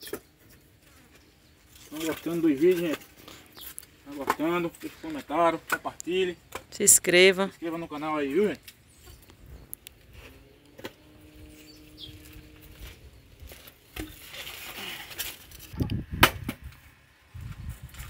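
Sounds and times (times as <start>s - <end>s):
wood knocking and snapping: 16.2s - 16.6s.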